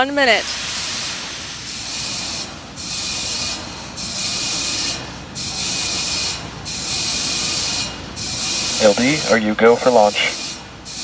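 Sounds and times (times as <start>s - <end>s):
rocket venting gas hiss: 0.2s - 2.3s.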